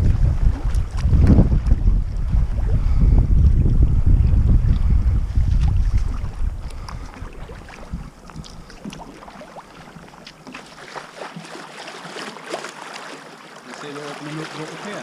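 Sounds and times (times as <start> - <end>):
paddle water splashes and drips: 0.0 - 2.8, 4.7 - 15.0
wind rumbling on microphone: 0.0 - 10.0.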